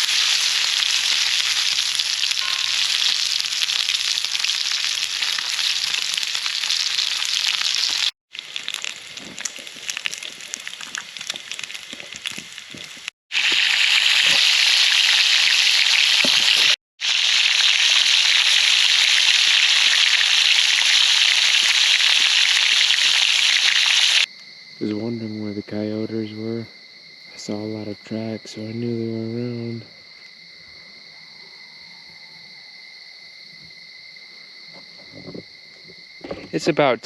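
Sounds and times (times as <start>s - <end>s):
night insects chorus: 0.0s - 13.0s, 17.7s - 37.0s
campfire crackling and popping: 0.0s - 24.3s.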